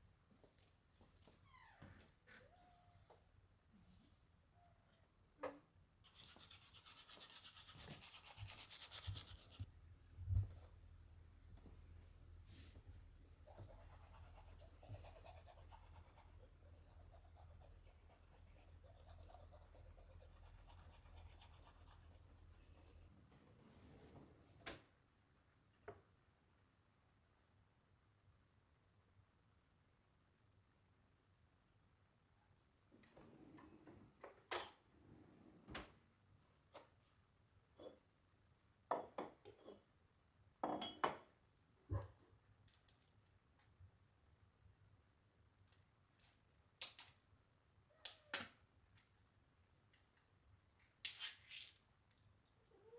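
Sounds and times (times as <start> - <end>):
light scratching and rubbing: 6.0 - 9.8
dishes and cutlery clinking: 40.7 - 41.3.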